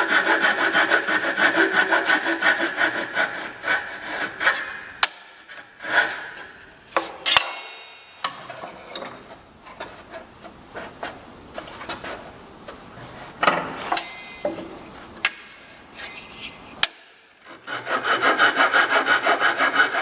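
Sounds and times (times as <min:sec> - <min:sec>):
hand tool rubbing on wood: 0:00.0 - 0:07.3, 0:08.2 - 0:13.4, 0:14.6 - 0:16.8, 0:17.5 - 0:20.0
knocks and clicks of wood and tools: 0:03.6 - 0:12.8, 0:13.4 - 0:15.6.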